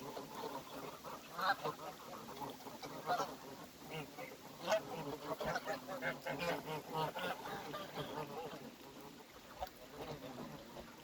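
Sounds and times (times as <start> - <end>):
ducks quacking: 0.0 - 11.0
geese honking: 0.0 - 11.0.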